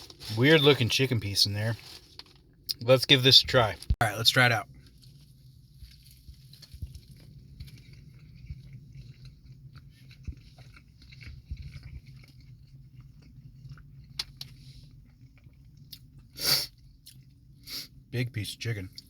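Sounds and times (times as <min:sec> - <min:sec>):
low steady hum: 0:00.0 - 0:19.0
person chewing crunchy food: 0:04.8 - 0:17.5.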